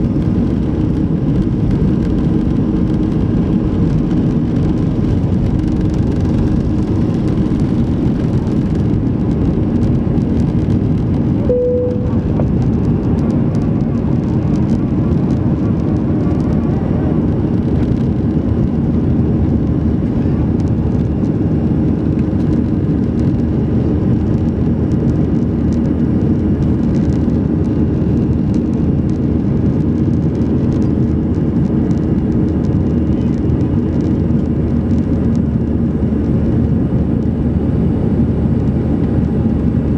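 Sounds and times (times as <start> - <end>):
airplane cabin engine noise: 0.0 - 39.9
single tone chime: 11.4 - 12.3.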